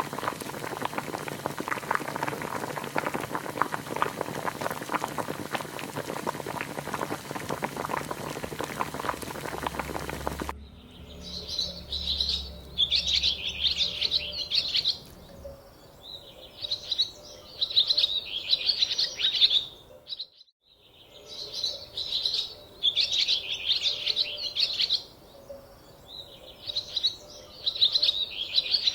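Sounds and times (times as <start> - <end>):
soup bubbling in a pot: 0.0 - 10.5
small birds twittering: 9.0 - 28.9.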